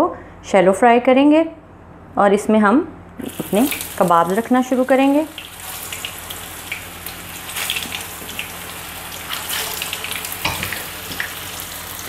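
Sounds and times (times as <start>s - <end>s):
patties sizzling in oil: 3.2s - 12.0s.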